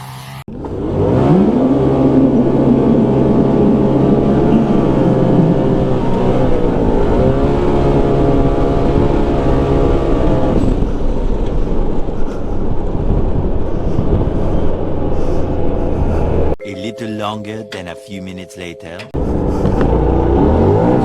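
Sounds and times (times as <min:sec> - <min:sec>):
engine revving hard: 0:00.0 - 0:11.0, 0:19.2 - 0:21.0.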